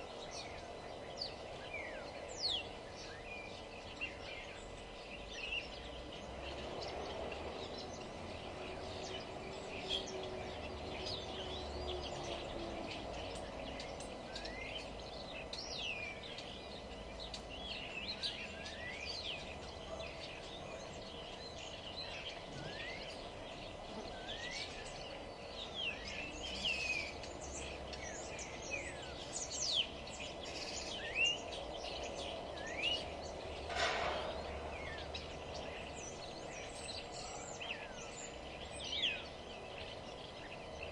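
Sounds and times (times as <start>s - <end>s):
songbirds chirping and singing: 0.0s - 40.9s
steady background hum: 0.0s - 40.9s.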